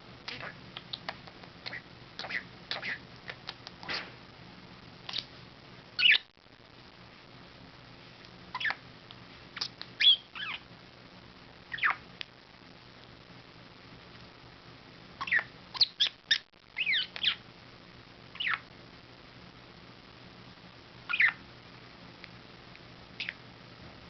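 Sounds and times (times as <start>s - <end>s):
budgerigar chirps and squawks: 1.6s - 3.0s, 6.0s - 6.3s, 8.6s - 8.8s, 9.6s - 10.6s, 11.7s - 12.0s, 15.2s - 17.4s, 18.4s - 18.6s, 21.1s - 21.4s.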